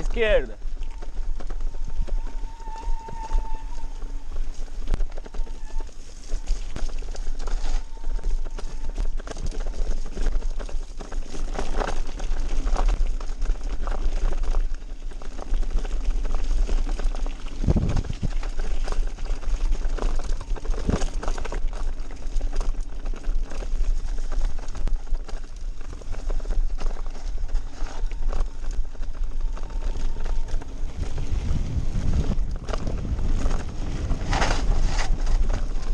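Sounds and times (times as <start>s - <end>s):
low wind rumble: 0.0s - 35.9s
mountain bike rattling: 0.0s - 35.9s.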